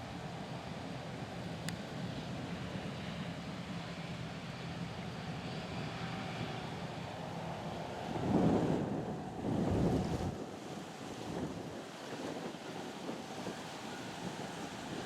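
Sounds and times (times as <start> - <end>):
wind buffeting microphone: 7.9 - 15.0.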